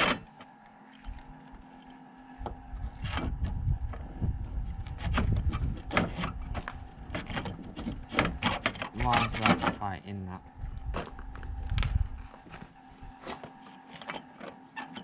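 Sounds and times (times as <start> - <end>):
faint steady hum: 0.0 - 15.0
tools knocking and rattling: 12.4 - 15.0.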